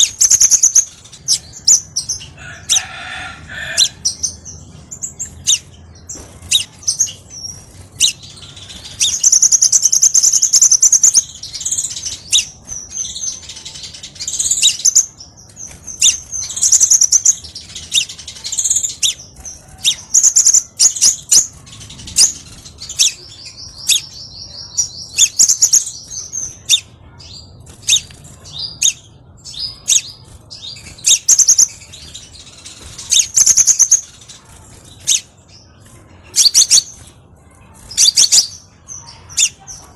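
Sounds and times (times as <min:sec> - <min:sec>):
bird chips and trills: 0:00.0 - 0:39.9.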